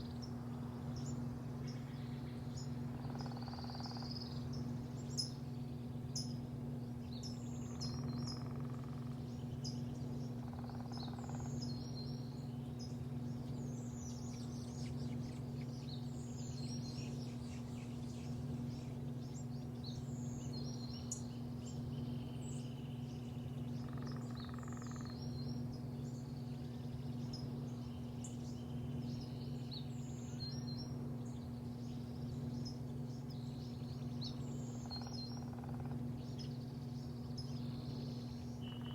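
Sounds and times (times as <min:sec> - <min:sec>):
low mechanical hum: 0:00.0 - 0:38.9
small birds chirping: 0:00.0 - 0:38.9.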